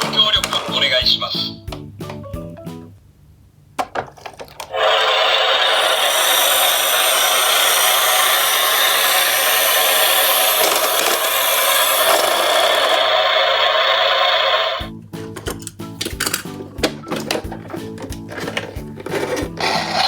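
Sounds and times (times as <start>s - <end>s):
toy truck wheels rolling down slope: 4.4s - 14.8s, 17.0s - 20.0s.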